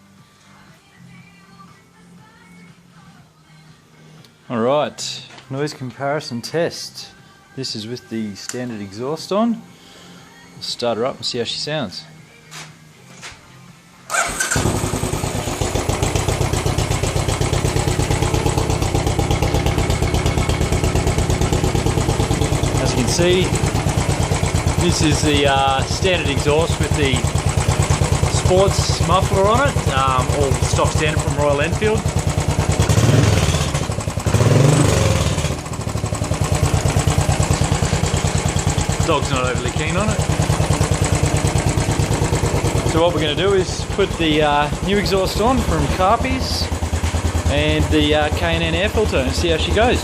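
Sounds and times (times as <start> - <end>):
motorcycle engine starting and idling: 14.1 - 50.0.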